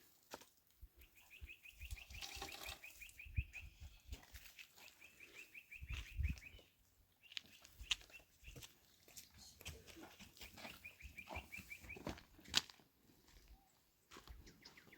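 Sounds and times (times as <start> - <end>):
small bird chirping: 1.0 - 8.8, 10.1 - 12.2, 14.4 - 14.9.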